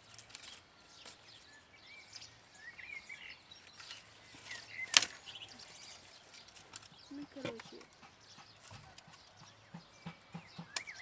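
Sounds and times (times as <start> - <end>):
bird chirps: 0.1 - 11.0
sharp crack: 4.9 - 5.2.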